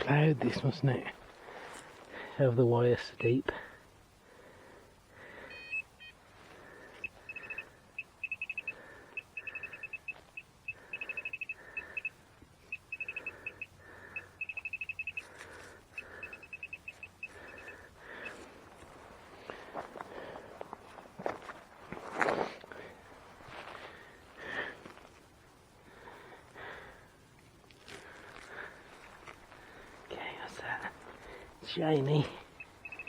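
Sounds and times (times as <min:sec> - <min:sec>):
rapid high beeps: 0:05.5 - 0:06.2, 0:07.0 - 0:18.4, 0:32.2 - 0:33.0
soft scraping of soil: 0:18.3 - 0:25.3.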